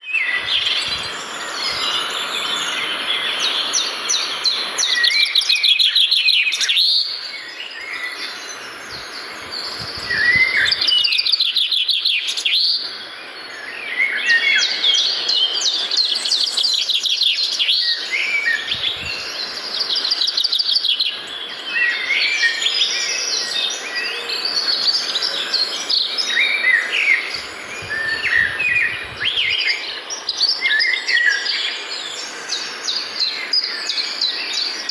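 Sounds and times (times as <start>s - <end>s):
birds singing and chirping: 0.0s - 34.9s
steady high-pitched whine: 0.2s - 4.7s.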